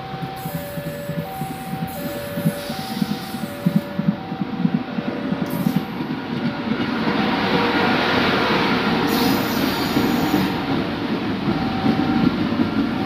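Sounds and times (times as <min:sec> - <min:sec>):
two-tone level crossing alarm: 0:00.0 - 0:06.0, 0:11.4 - 0:13.0
train rumbling on track: 0:00.0 - 0:13.0.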